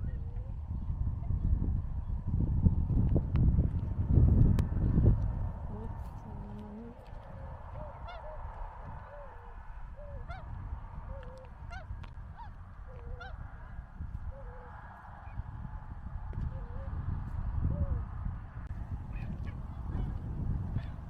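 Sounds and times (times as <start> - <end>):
swans or geese calling: 7.8 - 8.4.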